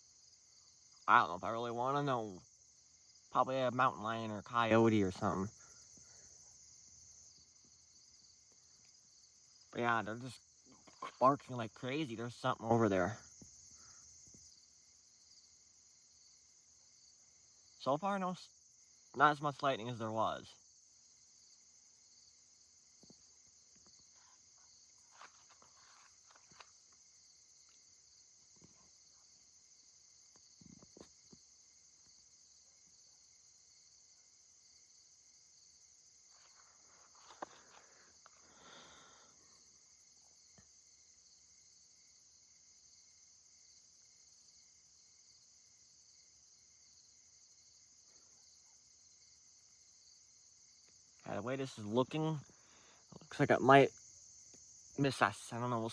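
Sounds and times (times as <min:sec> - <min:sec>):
night insect chorus: 0:00.0 - 0:55.9.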